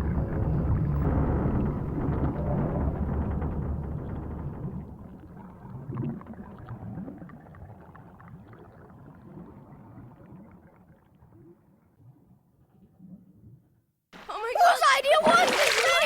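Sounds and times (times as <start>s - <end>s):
low rumble: 0.0s - 5.8s
gurgling water-like noise: 0.0s - 13.6s.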